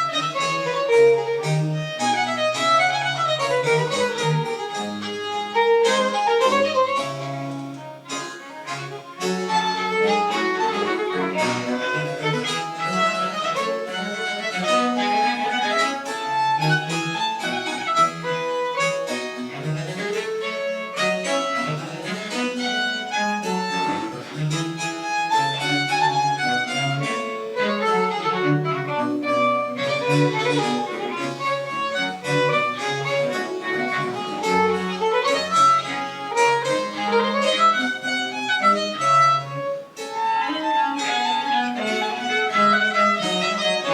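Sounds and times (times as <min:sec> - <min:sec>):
baroque chamber ensemble playing: 0:00.0 - 0:43.9
violin playing quick notes: 0:00.0 - 0:43.9.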